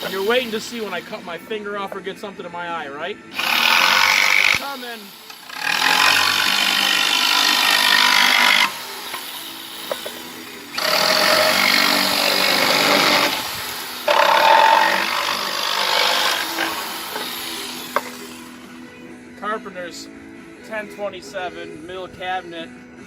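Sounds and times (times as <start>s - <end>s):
jigsaw cutting wood: 0.0s - 1.2s, 3.3s - 18.7s.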